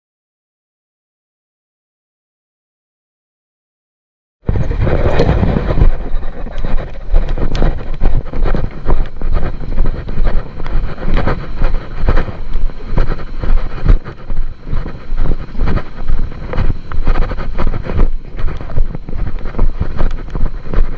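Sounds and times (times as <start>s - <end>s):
wind buffeting microphone: 4.5s - 20.9s.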